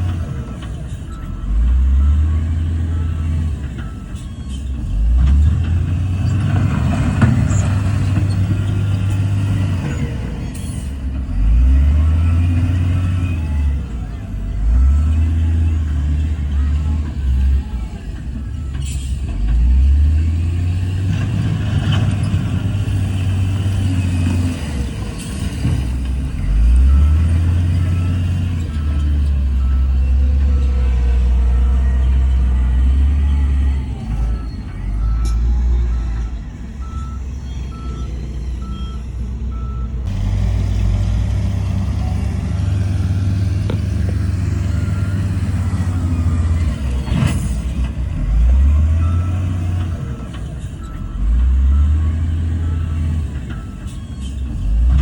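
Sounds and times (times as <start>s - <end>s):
heavy diesel machinery engine: 0.0s - 55.0s
reversing alarm beeps: 0.3s - 4.7s, 26.4s - 39.9s, 48.5s - 54.8s.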